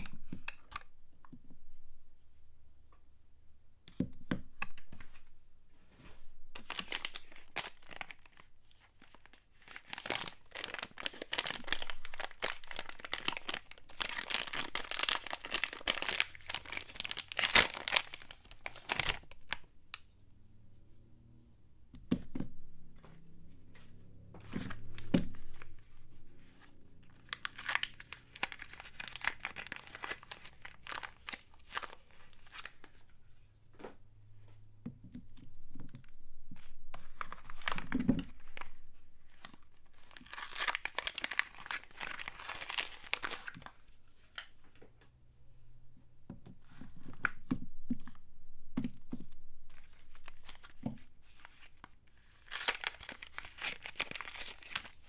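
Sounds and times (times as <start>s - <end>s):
wrapper tearing and crinkling: 6.6s - 19.6s, 27.1s - 32.8s, 37.0s - 38.8s, 39.4s - 43.7s, 49.7s - 55.0s.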